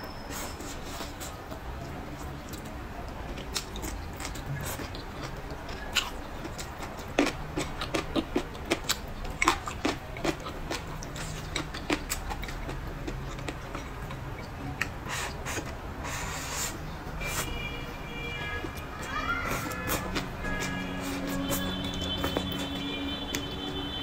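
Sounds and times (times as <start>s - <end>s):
person chewing leafy vegetables: 0.3s - 17.6s, 18.3s - 24.0s
wet mouth clicks and smacks: 1.0s - 16.7s.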